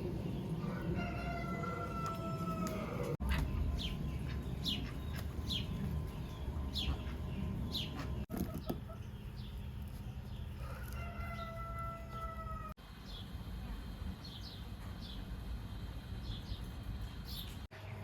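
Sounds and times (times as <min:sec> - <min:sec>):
low rumble: 0:00.0 - 0:08.3
birds chirping: 0:00.0 - 0:18.0.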